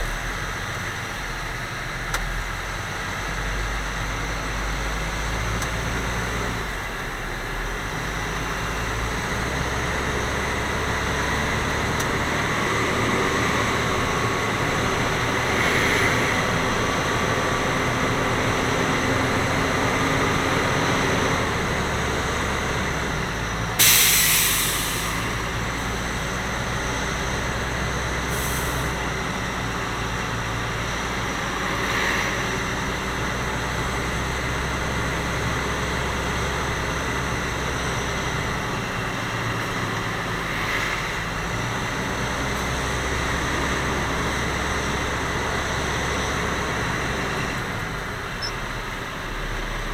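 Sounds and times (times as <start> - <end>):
truck engine running: 0.0 - 49.9
air hiss: 23.8 - 25.6.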